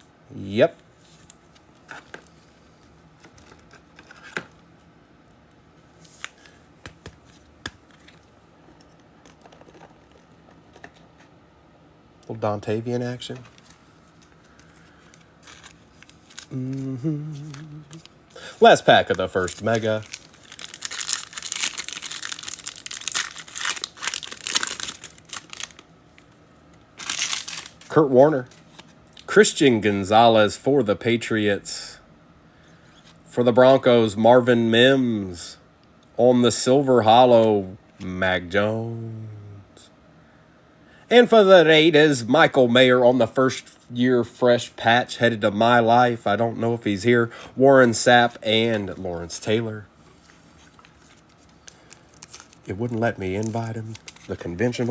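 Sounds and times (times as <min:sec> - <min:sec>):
faint rustling of card packs: 0:00.3 - 0:04.9, 0:05.7 - 0:11.4, 0:12.3 - 0:31.6, 0:32.6 - 0:35.5, 0:41.2 - 0:54.9
foil wrapper crinkling and tearing: 0:13.5 - 0:26.3, 0:27.0 - 0:29.3, 0:50.3 - 0:54.9.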